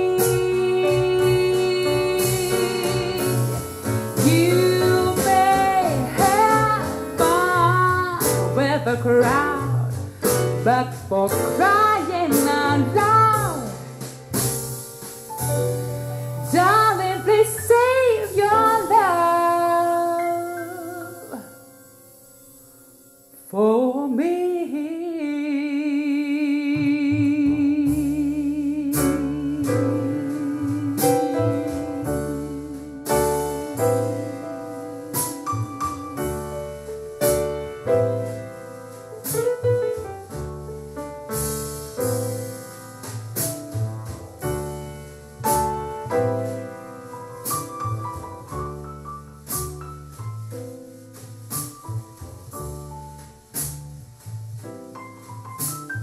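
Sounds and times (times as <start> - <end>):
person singing with vibrato: 0.0 - 3.6, 4.2 - 9.9, 16.6 - 21.5, 23.5 - 36.4
bass line: 0.0 - 21.4, 26.7 - 56.0
piano chords: 0.0 - 56.0.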